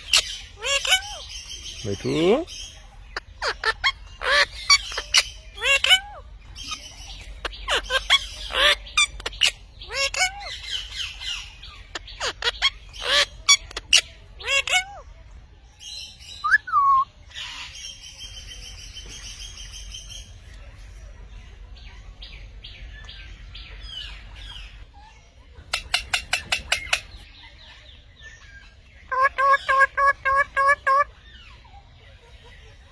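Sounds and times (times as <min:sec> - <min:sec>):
parrots squawking and screeching: 0:00.0 - 0:15.1, 0:23.7 - 0:27.3, 0:28.4 - 0:31.9.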